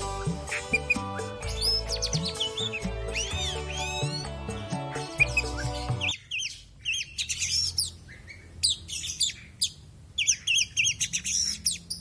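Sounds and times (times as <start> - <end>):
background music: 0.0 - 6.1
songbird whistling and chattering: 0.0 - 12.0.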